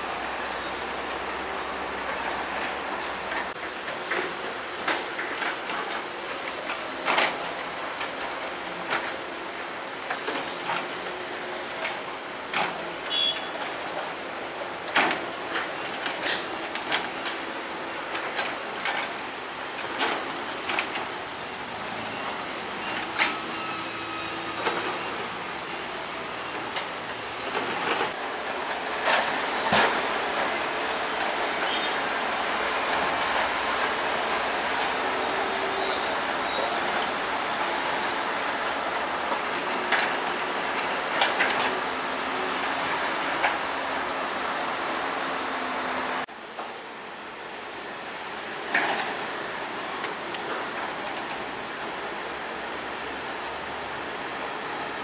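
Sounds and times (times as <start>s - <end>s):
metallic squeals and knocks: 22.0s - 25.2s.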